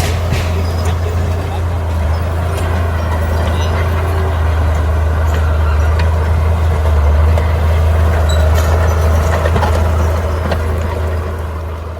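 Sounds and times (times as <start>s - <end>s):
bulldozer engine humming: 0.0s - 11.9s.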